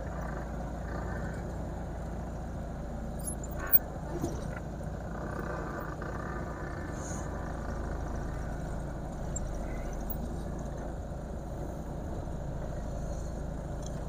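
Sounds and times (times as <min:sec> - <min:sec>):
car engine rumble from cabin: 0:00.0 - 0:14.0.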